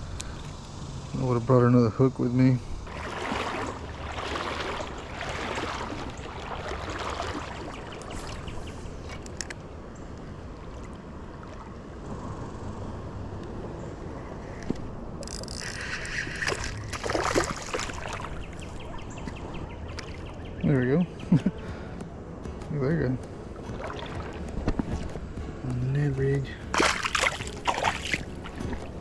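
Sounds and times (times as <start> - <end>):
river current rumble: 0.0 - 22.0
wind: 0.0 - 29.0
water splash: 2.8 - 8.6, 15.3 - 19.1, 23.6 - 25.2, 26.7 - 29.0
water sloshing around legs: 2.8 - 9.5, 15.2 - 20.5, 23.3 - 25.4, 26.6 - 29.0.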